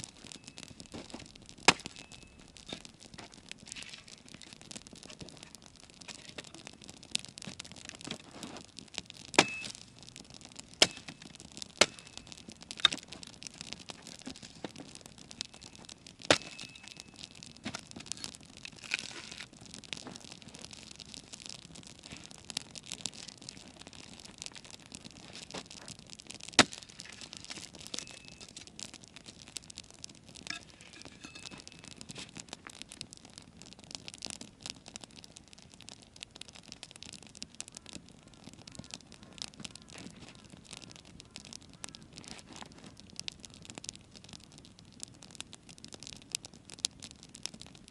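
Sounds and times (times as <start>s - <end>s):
sharp loud pops of fire: 0.0s - 3.4s, 9.0s - 13.3s, 15.4s - 19.2s, 26.3s - 28.8s
campfire wood crackling: 0.0s - 47.9s.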